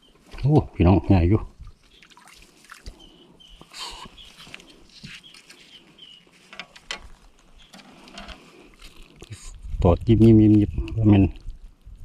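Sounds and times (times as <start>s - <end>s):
bird chirping: 1.6s - 6.5s, 7.5s - 8.0s.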